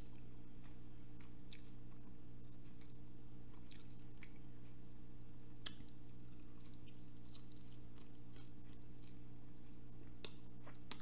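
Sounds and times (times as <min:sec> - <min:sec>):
low hum: 0:00.0 - 0:11.0
wet mouth clicks and smacks: 0:05.6 - 0:06.0
chewing and biting: 0:05.6 - 0:09.2.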